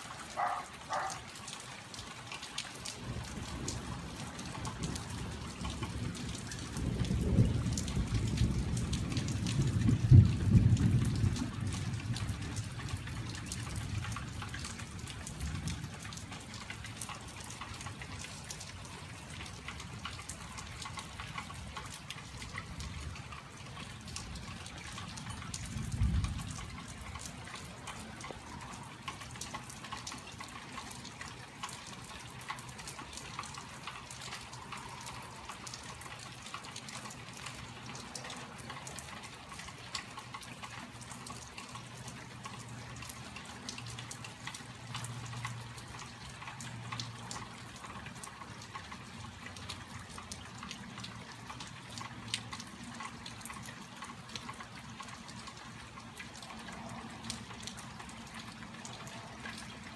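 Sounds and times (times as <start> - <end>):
rain falling and dripping: 0.0 - 59.9.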